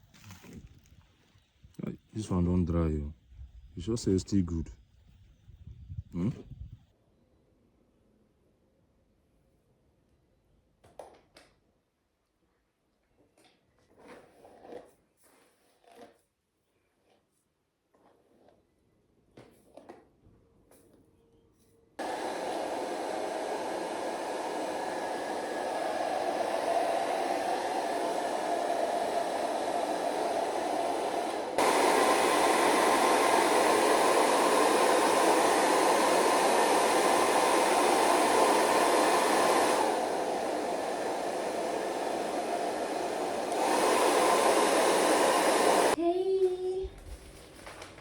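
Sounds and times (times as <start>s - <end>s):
hair dryer blowing: 22.0s - 46.0s.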